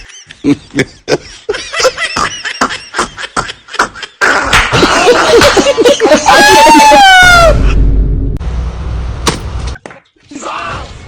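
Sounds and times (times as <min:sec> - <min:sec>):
person laughing: 0:00.0 - 0:07.8.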